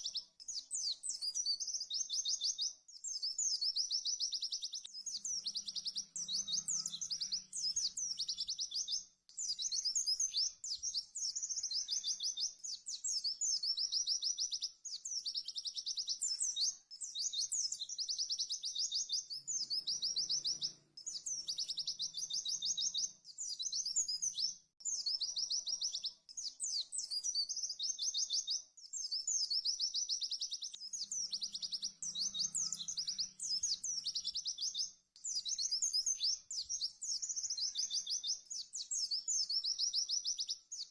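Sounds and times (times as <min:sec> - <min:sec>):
bird singing fast trilled phrases: 0:00.0 - 0:40.9.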